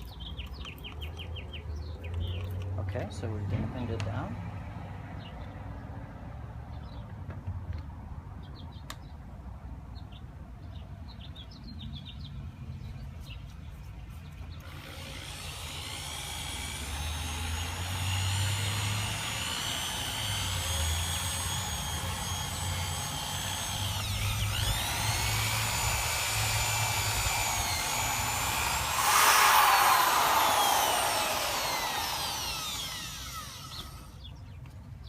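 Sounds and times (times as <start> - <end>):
electric drill sanding plastic: 14.7 - 34.3.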